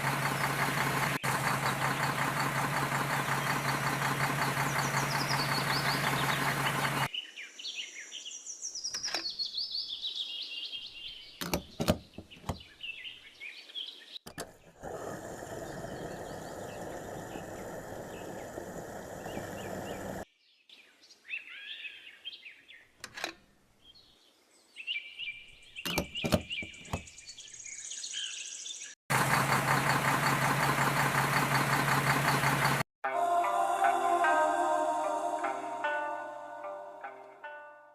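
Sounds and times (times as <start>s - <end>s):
small engine running: 0.0s - 7.1s, 14.3s - 20.2s, 29.1s - 32.9s
bird chirps: 4.4s - 14.2s, 15.6s - 23.0s, 23.8s - 29.0s.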